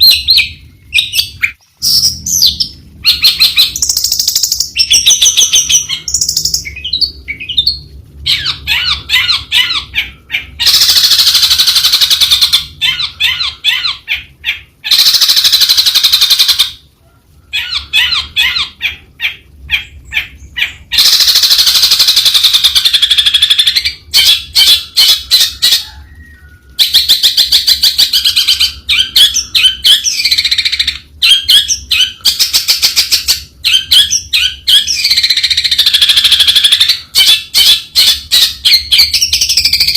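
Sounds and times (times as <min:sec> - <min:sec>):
bird chattering and warbling song: 0:00.0 - 0:16.8, 0:17.5 - 0:39.9.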